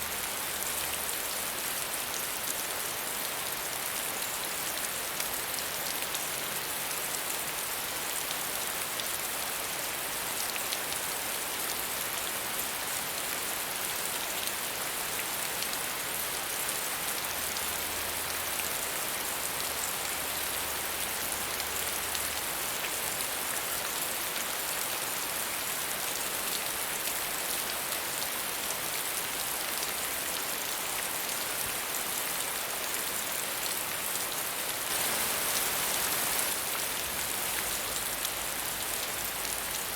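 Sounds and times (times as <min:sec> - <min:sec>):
rain pattering: 0:34.1 - 0:39.9.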